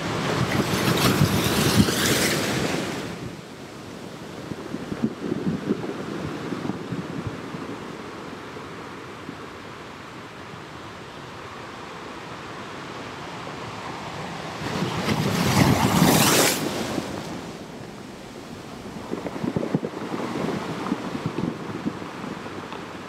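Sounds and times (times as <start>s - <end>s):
ocean surf washing: 0.0s - 23.0s
wave surging in: 13.4s - 21.2s.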